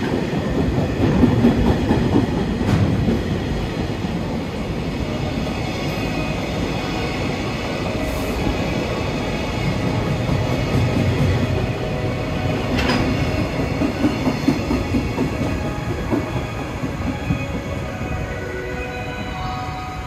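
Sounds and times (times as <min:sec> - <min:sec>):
freight train wheels rumbling: 0:00.0 - 0:20.0.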